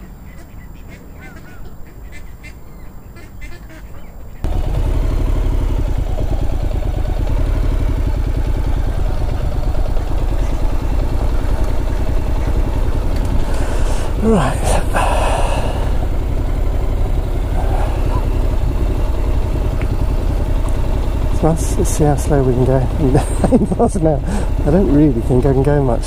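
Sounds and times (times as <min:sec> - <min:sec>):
ducks quacking: 0:00.0 - 0:04.1, 0:17.5 - 0:18.3
motorcycle engine running: 0:04.4 - 0:26.0.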